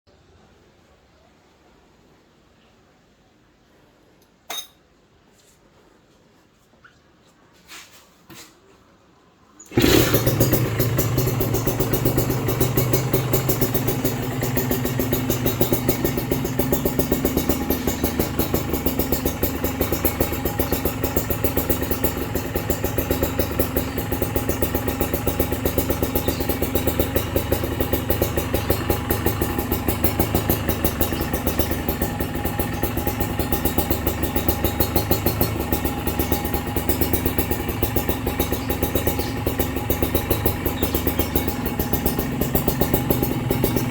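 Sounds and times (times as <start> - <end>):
motorcycle engine idling: 9.7 - 43.9.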